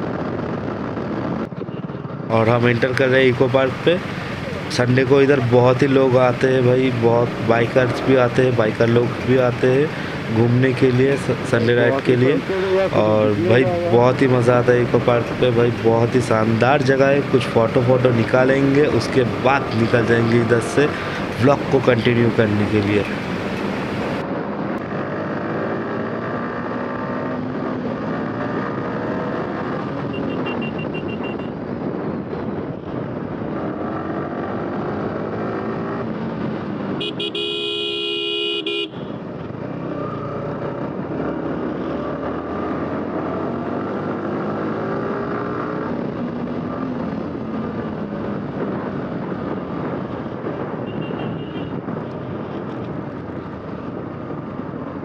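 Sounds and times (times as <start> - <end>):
motorcycle engine revving: 23.1 - 31.5, 33.2 - 52.5
vehicle horn: 30.1 - 31.5, 37.0 - 39.2, 50.8 - 51.8.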